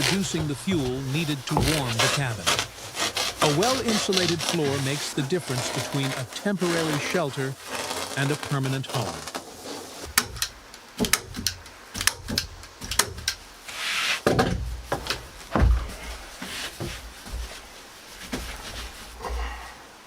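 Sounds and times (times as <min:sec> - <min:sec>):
dull thuds: 0:00.0 - 0:06.0, 0:14.2 - 0:19.6
short rustle: 0:00.0 - 0:11.0, 0:13.5 - 0:20.0
knocks and clicks on wooden boards: 0:10.1 - 0:13.4, 0:14.2 - 0:15.9.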